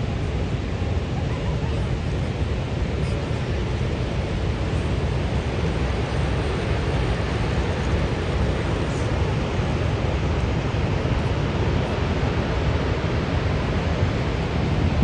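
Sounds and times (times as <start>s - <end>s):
waterfall roaring: 0.0s - 15.0s
wind rumble on microphone: 0.0s - 15.0s.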